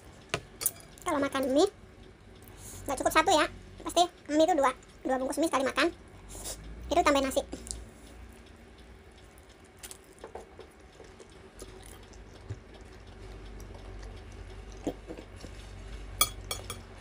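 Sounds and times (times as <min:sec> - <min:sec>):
chewing food: 0:07.4 - 0:16.9.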